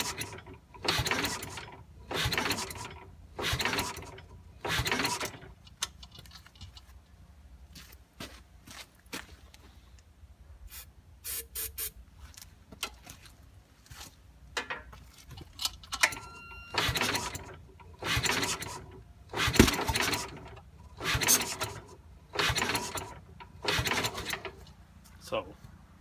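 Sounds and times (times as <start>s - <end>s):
tractor engine cranking: 0.0s - 7.0s, 14.6s - 24.8s.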